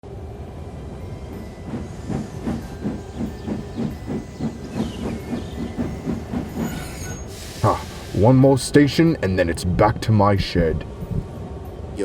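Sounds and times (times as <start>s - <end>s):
steam locomotive chuffing: 1.6s - 9.0s
steam hissing: 1.7s - 8.6s.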